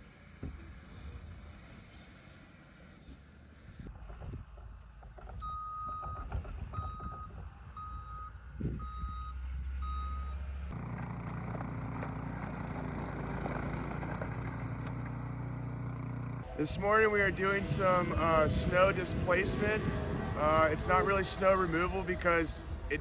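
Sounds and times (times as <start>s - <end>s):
vehicle reversing alarm beeping: 5.4s - 10.8s.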